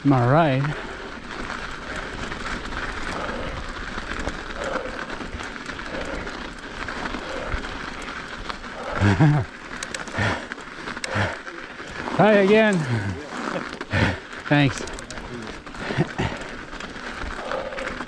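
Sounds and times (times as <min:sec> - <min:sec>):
bike clicks and rattles: 0:00.0 - 0:18.0
bike tyres crunching on snow: 0:00.0 - 0:18.0.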